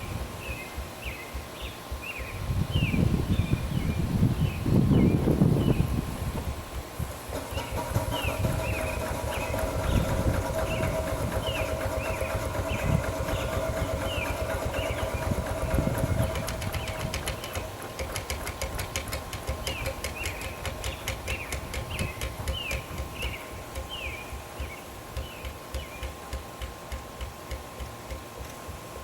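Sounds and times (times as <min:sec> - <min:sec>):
steam traction engine rumble: 0:05.2 - 0:24.5.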